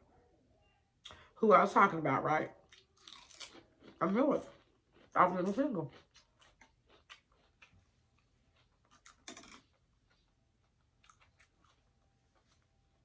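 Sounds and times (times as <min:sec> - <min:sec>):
person chewing: 0:02.6 - 0:13.0.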